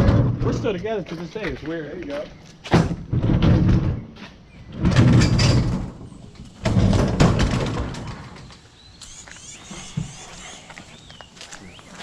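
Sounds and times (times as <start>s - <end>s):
faint bird chirps: 8.4s - 12.0s.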